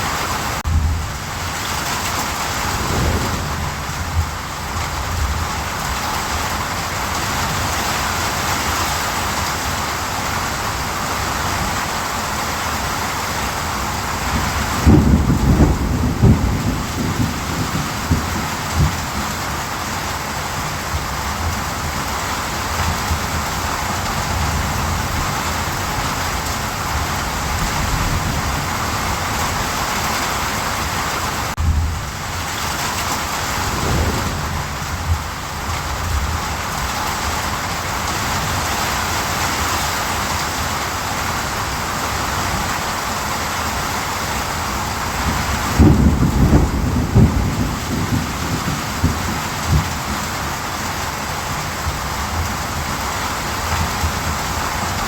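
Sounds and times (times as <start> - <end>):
heavy rain: 0.0 - 55.0
thunder rumbling: 0.6 - 6.9, 14.2 - 19.5, 31.5 - 37.7, 45.0 - 50.2.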